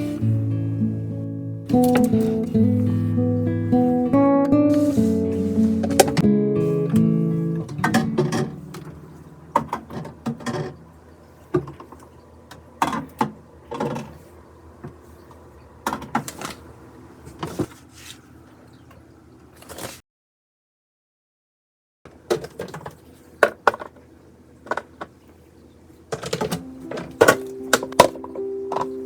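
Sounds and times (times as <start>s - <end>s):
acoustic guitar music: 0.0s - 11.5s, 26.5s - 29.0s.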